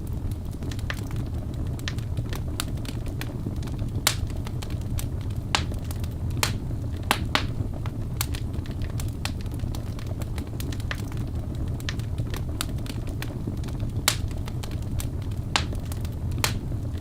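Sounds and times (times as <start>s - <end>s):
fire crackling and popping: 0.0s - 17.0s
flames rumbling: 0.0s - 17.0s.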